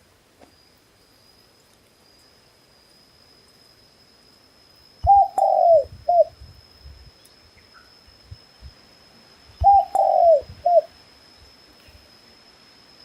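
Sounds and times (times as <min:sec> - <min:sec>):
dove cooing: 0:05.0 - 0:06.3, 0:09.6 - 0:10.9.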